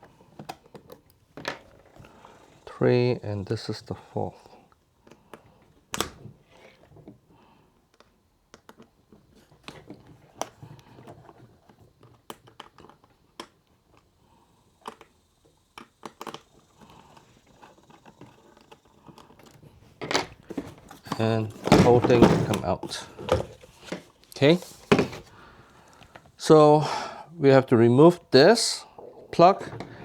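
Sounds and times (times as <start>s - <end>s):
small clicks and scrapes: 4.7s - 21.6s.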